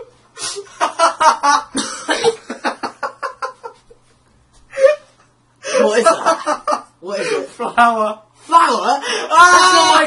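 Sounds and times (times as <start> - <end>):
person coughing: 1.7 - 2.6.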